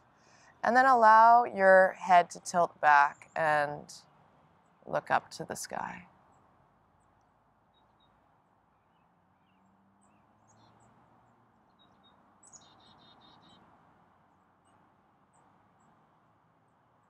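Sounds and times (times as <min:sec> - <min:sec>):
faint high bird chirps: 0:11.7 - 0:13.6.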